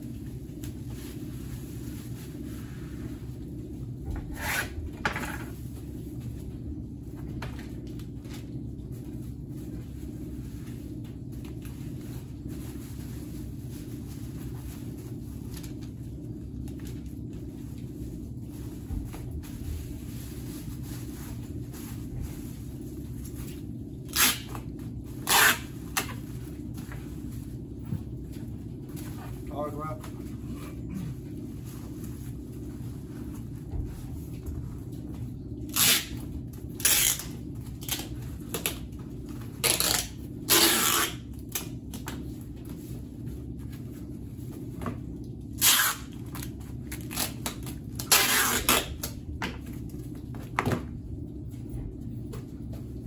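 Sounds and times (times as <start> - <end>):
parcel rustling and scraping: 0.0 - 41.6
steady low hum: 0.0 - 53.0.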